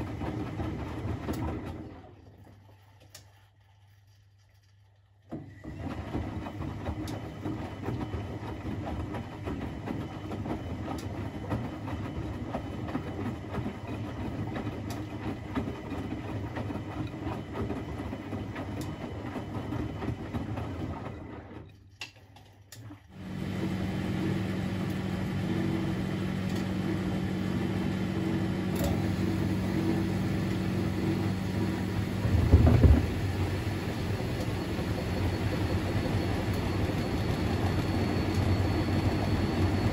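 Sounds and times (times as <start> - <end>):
washing machine running: 0.0 - 39.9
loud low knock: 32.2 - 33.4.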